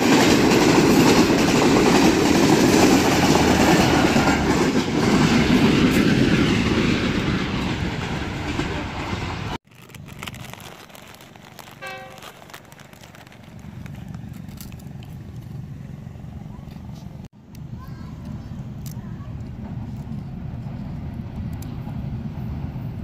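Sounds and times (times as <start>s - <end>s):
train passing at speed: 0.0s - 9.6s, 18.3s - 23.0s.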